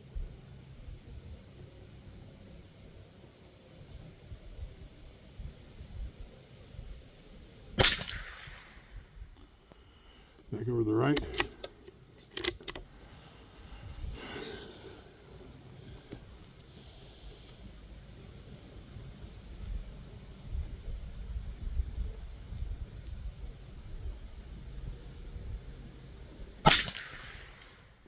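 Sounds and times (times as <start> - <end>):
wind rumbling on microphone: 4.0 - 9.5, 13.0 - 14.9, 17.9 - 27.7.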